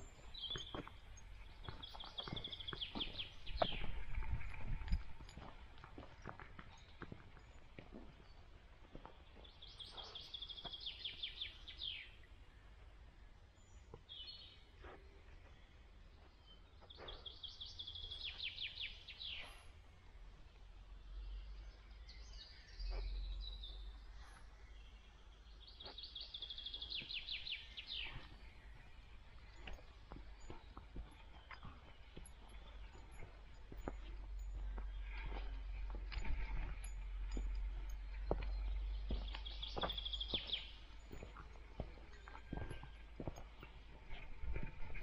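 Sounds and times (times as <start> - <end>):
faint footsteps: 0.0 - 11.5, 25.7 - 45.0
songbird singing: 0.0 - 45.0.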